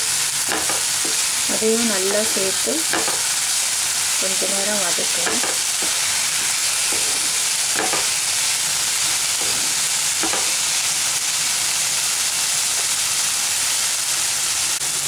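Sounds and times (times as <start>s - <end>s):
vegetables sizzling in a pan: 0.0s - 15.0s
wooden spatula scraping a pan: 5.0s - 8.2s, 9.0s - 10.6s.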